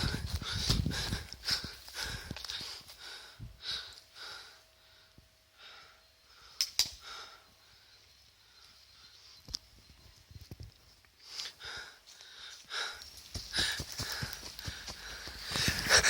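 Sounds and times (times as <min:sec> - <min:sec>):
person breathing rhythmically: 0:00.0 - 0:09.2, 0:11.2 - 0:16.0
sharp clicks: 0:06.6 - 0:07.1.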